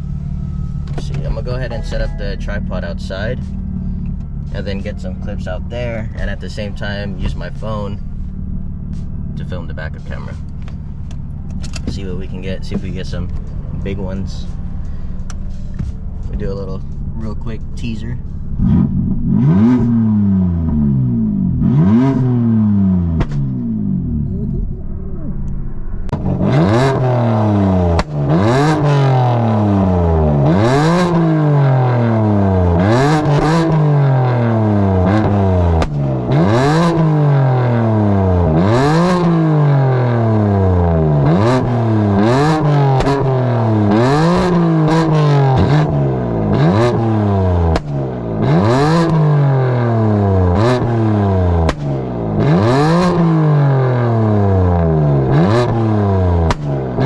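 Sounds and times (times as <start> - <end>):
car engine revving: 0.0 - 57.0
exhaust pops and cracks: 23.1 - 23.6, 27.9 - 28.3, 35.2 - 36.4, 47.7 - 48.2, 51.6 - 52.0, 56.4 - 56.8.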